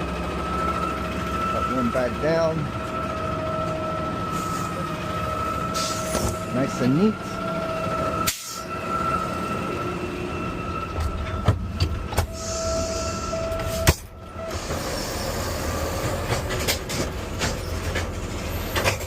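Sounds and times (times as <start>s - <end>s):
garbage truck engine running: 0.0s - 19.0s
hydraulic whine: 0.0s - 19.0s
light clanks and rattles: 16.0s - 19.0s.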